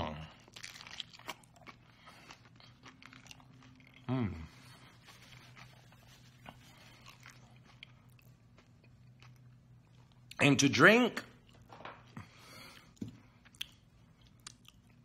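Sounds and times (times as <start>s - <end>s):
crunching and chewing crisp food: 0.0s - 10.5s, 11.3s - 15.0s
person humming: 4.1s - 4.6s.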